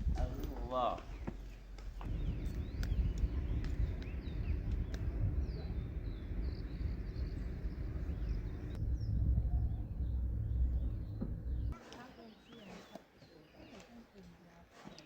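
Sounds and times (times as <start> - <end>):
small birds chirping: 0.2 - 15.0
low rumble: 1.8 - 11.8.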